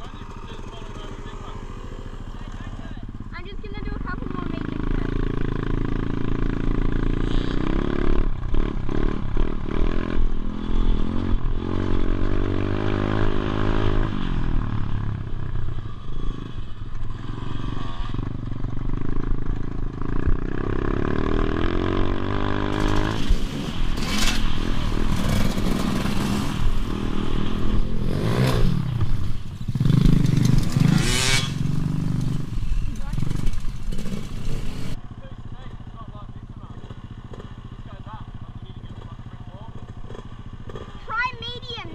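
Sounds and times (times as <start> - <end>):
motorbike engine revving: 0.0 - 41.9
clattering and rushing noise: 22.6 - 35.0.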